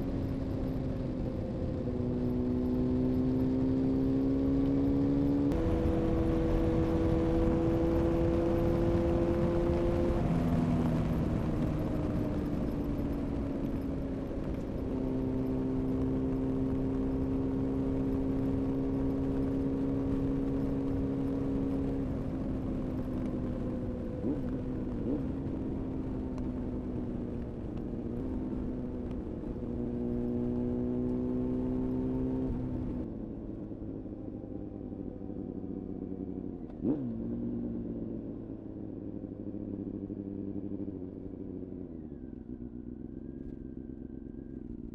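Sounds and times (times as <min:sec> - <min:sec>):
motorcycle engine cruising: 0:00.0 - 0:44.9.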